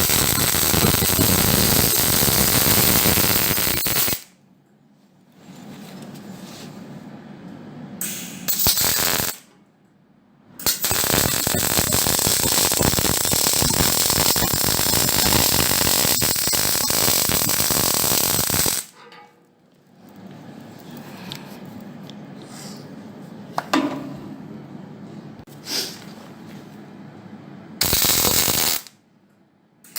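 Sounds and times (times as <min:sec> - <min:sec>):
welder crackling: 0:00.0 - 0:04.3, 0:08.5 - 0:09.5, 0:10.6 - 0:19.0, 0:27.8 - 0:28.9.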